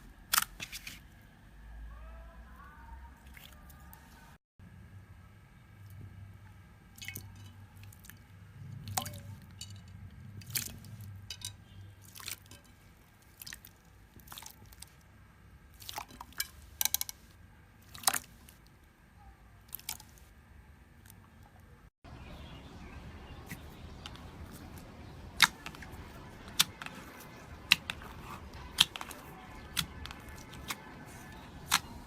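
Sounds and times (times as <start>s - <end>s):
slime squishing by hand: 10.4s - 15.0s, 15.7s - 18.7s, 23.3s - 32.0s
slime popping and crackling: 24.0s - 32.0s.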